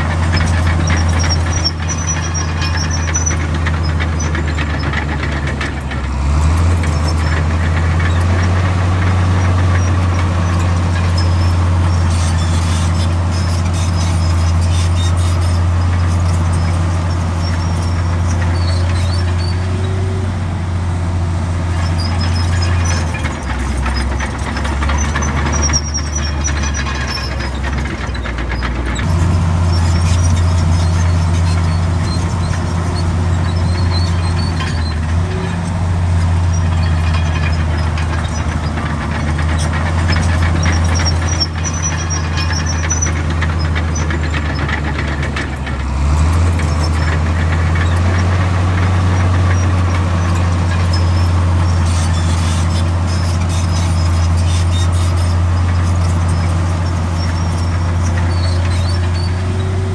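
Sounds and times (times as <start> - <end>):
bulldozer diesel engine under load: 0.0 - 59.9
high squeals: 29.0 - 45.3, 46.0 - 59.9.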